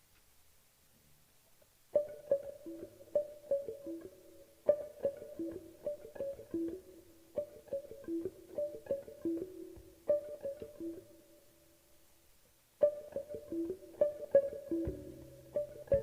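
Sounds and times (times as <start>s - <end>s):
guitar plucked figure: 1.9s - 11.5s, 12.8s - 16.0s.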